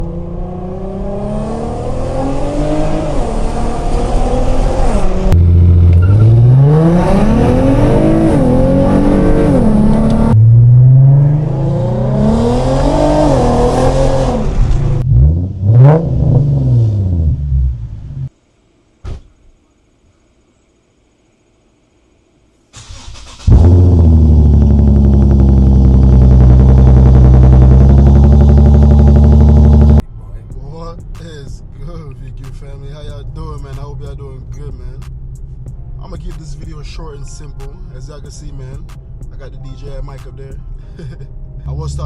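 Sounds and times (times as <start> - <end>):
engine rev blips: 0.0 - 14.4, 22.9 - 30.0
car engine accelerating hard: 0.0 - 18.3, 22.9 - 30.0.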